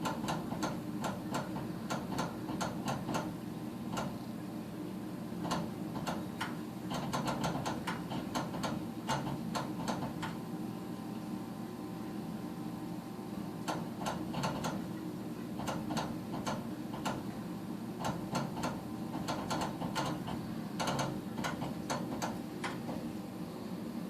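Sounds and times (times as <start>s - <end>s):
furnace sharp clicks: 0.0s - 3.3s, 3.9s - 4.2s, 5.4s - 10.4s, 13.6s - 15.0s, 15.6s - 17.4s, 18.0s - 23.1s
furnace motor hum: 0.0s - 24.0s.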